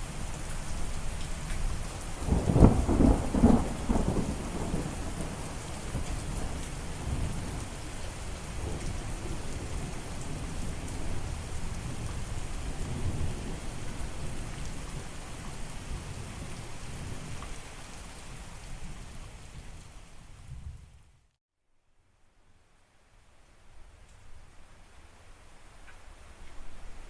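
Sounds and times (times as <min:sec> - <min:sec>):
rain falling: 0:00.0 - 0:21.3, 0:22.8 - 0:27.0
rolling rumble of thunder: 0:01.7 - 0:21.1.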